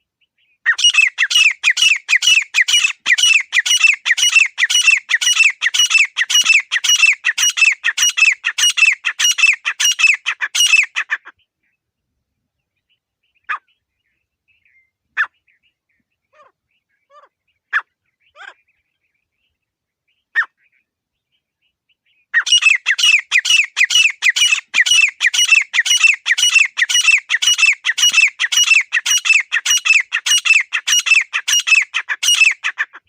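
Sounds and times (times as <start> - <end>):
francolin calling: 0.4 - 11.5, 22.1 - 32.8.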